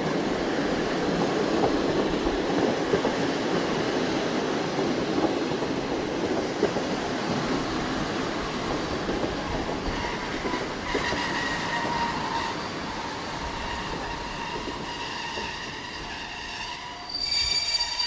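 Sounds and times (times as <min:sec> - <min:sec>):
train wheels rumbling on rails: 0:00.0 - 0:18.0
high wheel squeal: 0:09.8 - 0:18.0.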